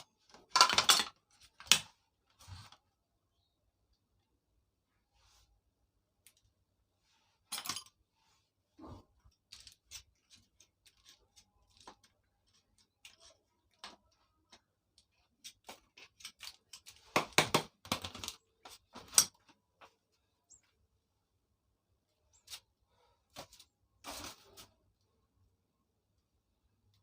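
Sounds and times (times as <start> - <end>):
metal parts and tools clinking: 0.4 - 1.8, 7.4 - 8.0, 18.1 - 19.6.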